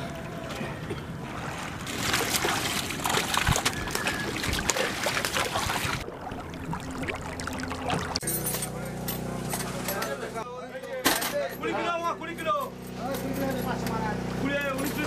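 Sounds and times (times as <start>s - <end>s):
fish splashing in a net: 1.2s - 8.2s.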